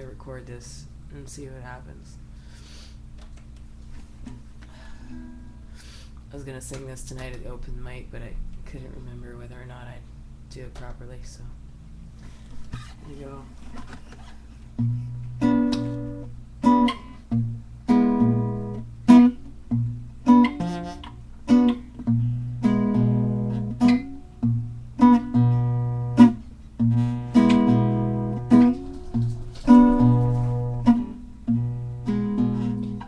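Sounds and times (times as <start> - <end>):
acoustic guitar strumming chords: 14.8 - 33.0.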